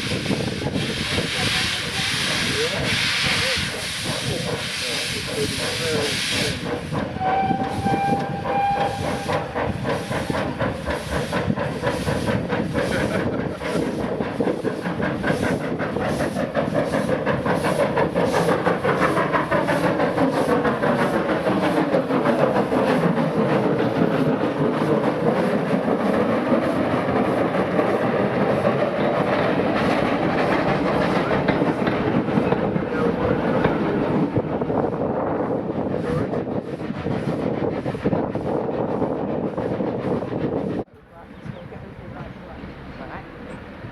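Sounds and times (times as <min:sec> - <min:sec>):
steam exhaust beats: 0:00.0 - 0:43.9
train clattering by: 0:00.0 - 0:43.9
steam locomotive whistle: 0:07.1 - 0:09.8.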